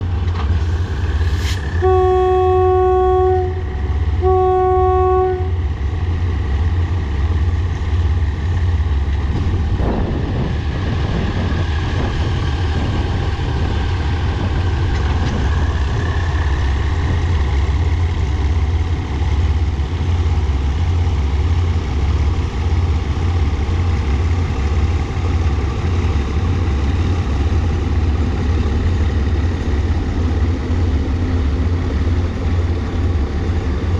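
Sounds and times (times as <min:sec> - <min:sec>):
diesel engines rumbling: 0:00.0 - 0:33.9
locomotive horn blasts: 0:01.8 - 0:05.6.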